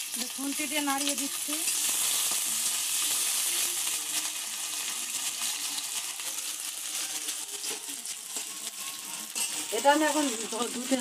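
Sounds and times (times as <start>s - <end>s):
potatoes sizzling in oil: 0.0s - 11.0s
metal spatula scraping pan: 6.9s - 11.0s.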